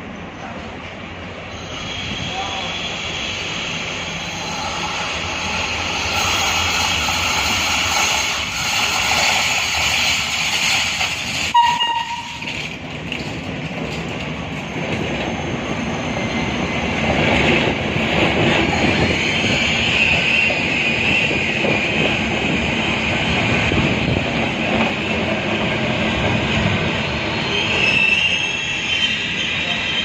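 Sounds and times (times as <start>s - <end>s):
train rumbling on track: 0.0s - 30.0s
train horn toot: 11.5s - 12.6s.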